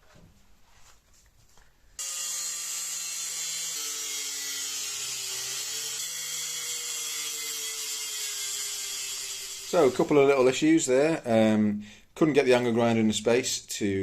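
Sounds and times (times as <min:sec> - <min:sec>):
angle grinder whining: 0:02.0 - 0:10.1.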